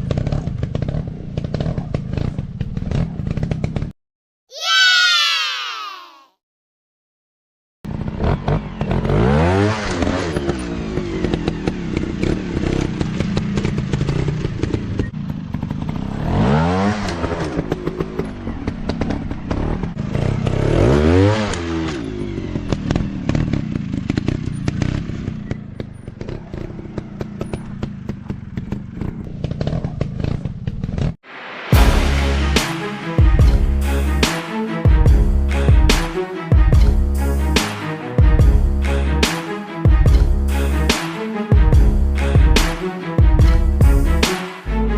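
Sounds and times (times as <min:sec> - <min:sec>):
dirt bike engine revving: 0:07.9 - 0:30.4.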